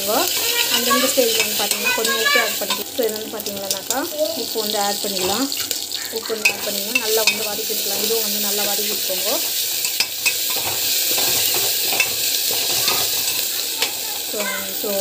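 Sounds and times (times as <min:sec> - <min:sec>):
vegetables sizzling in hot oil: 0:00.0 - 0:15.0
utensil clicking against metal pan: 0:00.3 - 0:04.0, 0:05.6 - 0:07.6.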